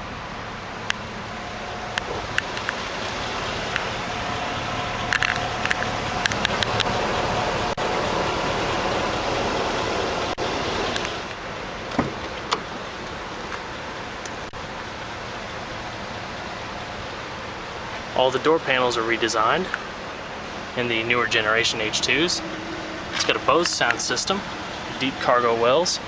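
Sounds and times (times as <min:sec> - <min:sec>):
car engine idling: 0:00.0 - 0:26.0
handling clicks and knocks: 0:05.0 - 0:07.0, 0:11.9 - 0:14.4, 0:23.1 - 0:24.1.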